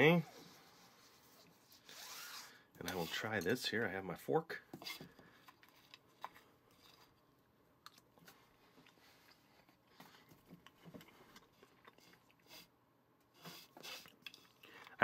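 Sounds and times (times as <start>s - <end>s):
faint chewing: 4.8s - 15.0s.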